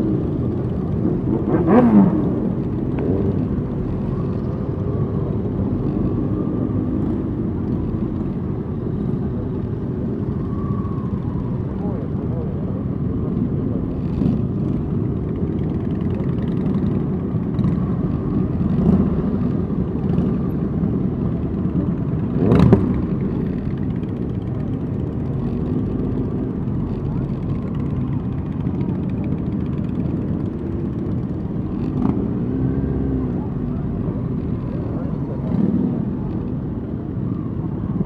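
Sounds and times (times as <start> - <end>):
motorcycle engines droning: 0.0 - 38.0
engine revving: 1.0 - 3.6.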